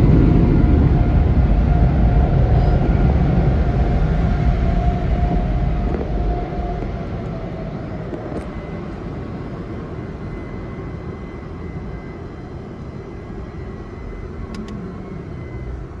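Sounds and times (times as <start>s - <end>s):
rushing machine noise: 0.0s - 10.1s
faint high whine: 0.0s - 16.0s.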